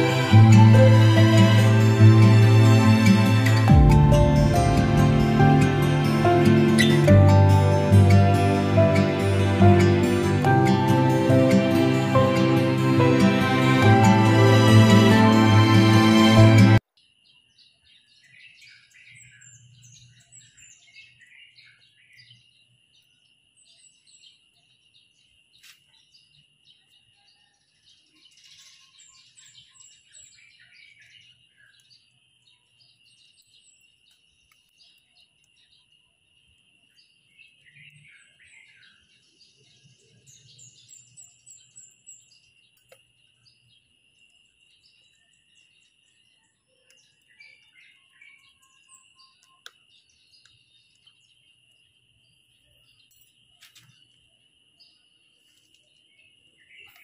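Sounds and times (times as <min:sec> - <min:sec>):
faint birds chirping: 0:16.9 - 0:57.0.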